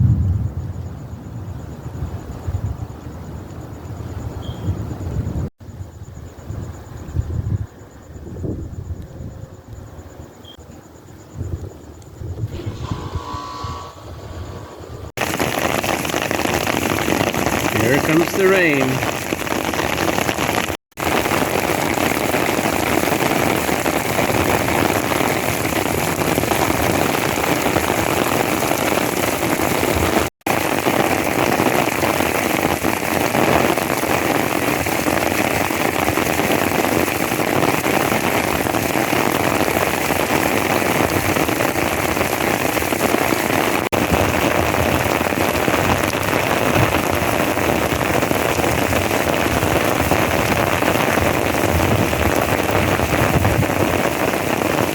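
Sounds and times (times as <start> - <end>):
heavy rain hissing on ground: 15.2 - 54.9.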